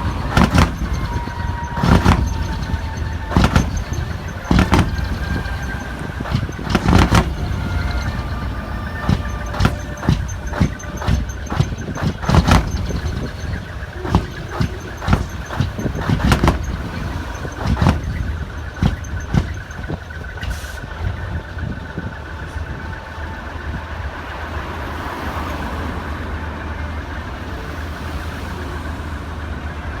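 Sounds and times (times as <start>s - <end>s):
diesel truck engine rumbling: 0.0s - 30.0s.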